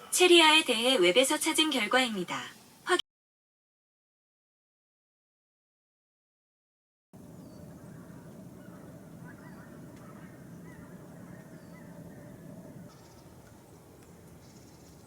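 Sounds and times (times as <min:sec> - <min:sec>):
low rumble: 0:07.2 - 0:14.4
faint honking bird calls: 0:07.2 - 0:15.0.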